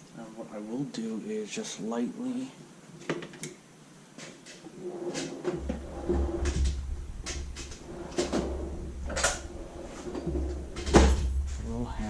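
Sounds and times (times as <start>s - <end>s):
steady low hum: 4.7s - 12.0s.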